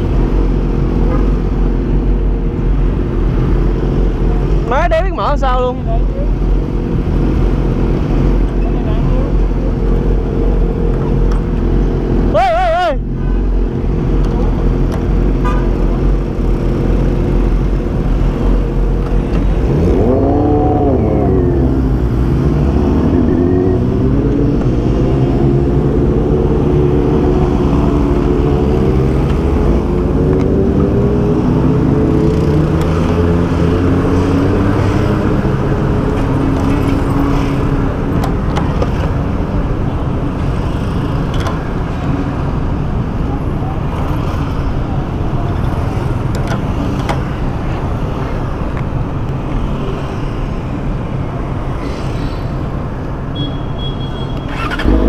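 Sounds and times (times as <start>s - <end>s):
motorcycle engine revving: 19.6s - 37.8s, 54.5s - 55.0s.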